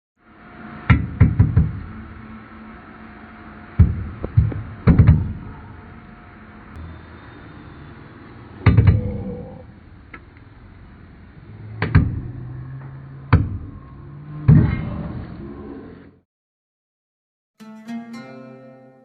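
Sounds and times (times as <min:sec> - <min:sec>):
sharp heavy knocks: 0:00.9 - 0:02.0, 0:03.8 - 0:05.5, 0:08.6 - 0:09.2, 0:11.8 - 0:12.4, 0:13.3 - 0:13.7, 0:14.4 - 0:15.0.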